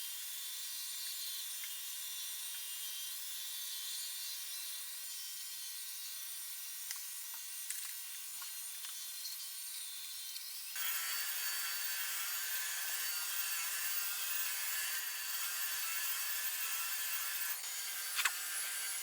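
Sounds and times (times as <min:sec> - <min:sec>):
robot vacuum whirring: 0:10.8 - 0:19.0.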